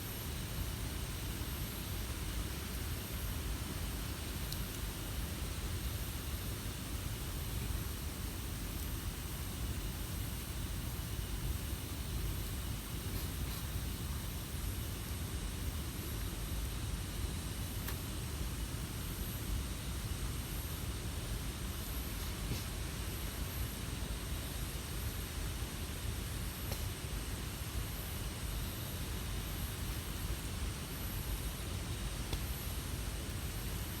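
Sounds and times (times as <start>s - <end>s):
campfire burning: 0.0s - 19.1s, 29.0s - 34.0s.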